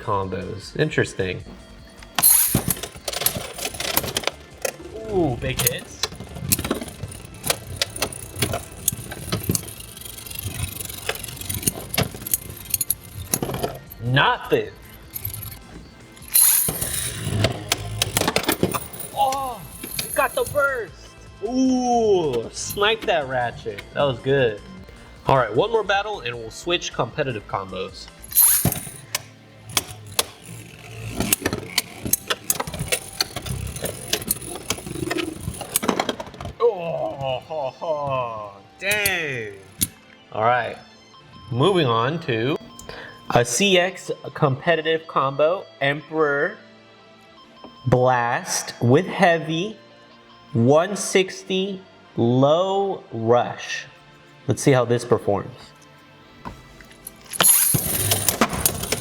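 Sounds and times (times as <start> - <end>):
spinning tops whirring: 1.8 - 20.9, 28.2 - 36.4
spinning tops clacking: 2.0 - 20.9, 28.2 - 36.4, 56.8 - 59.0.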